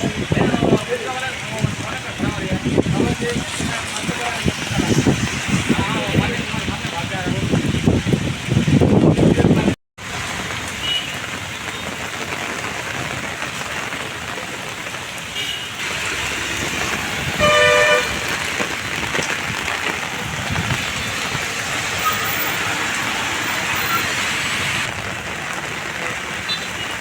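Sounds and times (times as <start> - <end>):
heavy rain on street: 0.0 - 27.0
vehicle horn: 15.3 - 15.8, 17.4 - 18.4.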